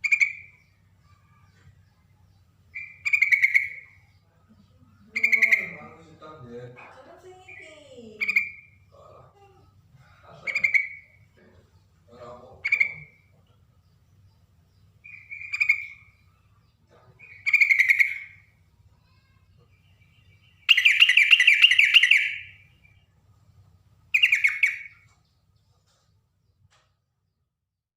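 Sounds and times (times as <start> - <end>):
bulbul singing bubbly phrases: 5.0 - 6.2, 7.1 - 9.8.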